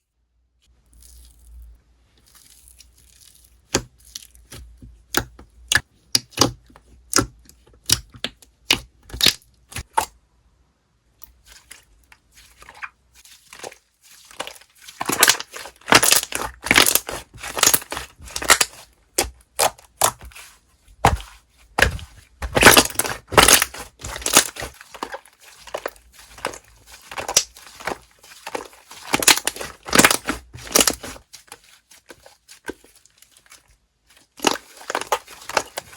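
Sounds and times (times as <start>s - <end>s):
slime crackling and popping: 2.2s - 10.1s, 14.3s - 31.2s, 34.3s - 35.9s.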